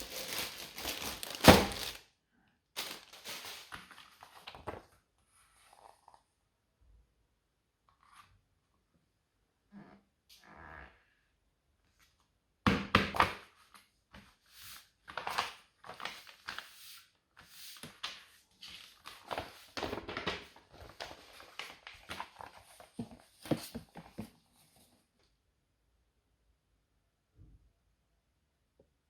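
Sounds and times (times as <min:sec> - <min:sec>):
packaging rustling and crinkling: 0:00.0 - 0:02.0, 0:02.8 - 0:04.9, 0:17.8 - 0:24.4.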